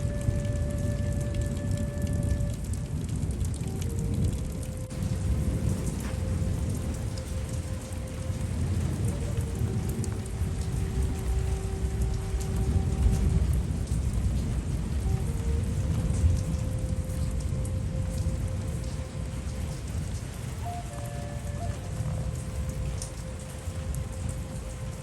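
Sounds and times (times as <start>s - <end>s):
heavy rain: 0.0s - 25.0s
soft flute notes: 0.0s - 25.0s
thunder rumbling: 0.0s - 25.0s.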